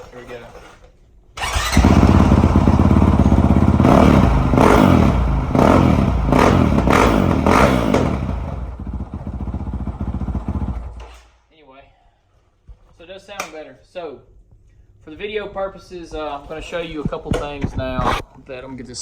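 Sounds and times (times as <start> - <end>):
motorcycle engine revving: 1.4 - 11.2.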